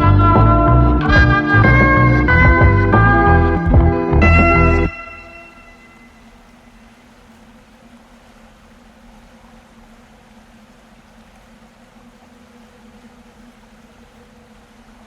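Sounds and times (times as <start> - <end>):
boat engine hum: 0.0 - 8.2
rushing water hiss: 5.0 - 15.0.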